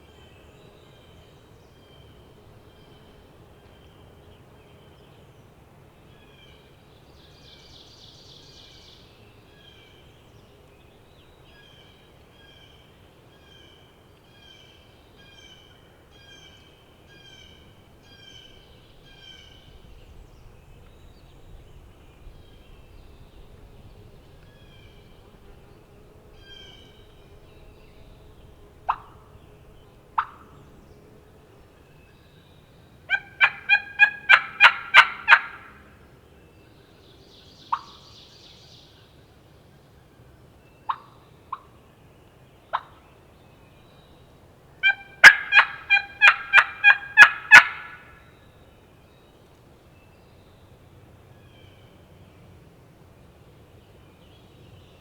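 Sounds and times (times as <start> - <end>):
faint low rumble: 17.2 - 33.3.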